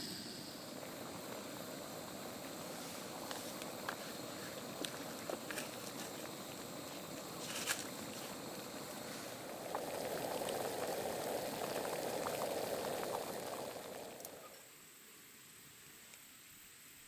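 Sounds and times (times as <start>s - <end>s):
pot of liquid boiling: 0.0s - 14.6s
faint ticks: 14.2s - 14.6s.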